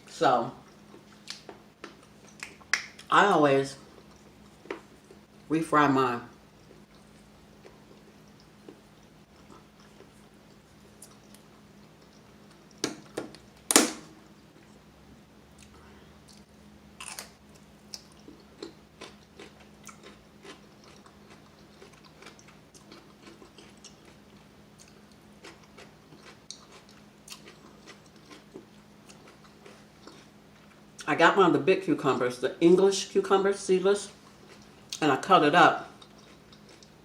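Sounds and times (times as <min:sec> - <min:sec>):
faint steady hum: 0:00.0 - 0:37.0
person crunching chicken wings: 0:17.0 - 0:30.7.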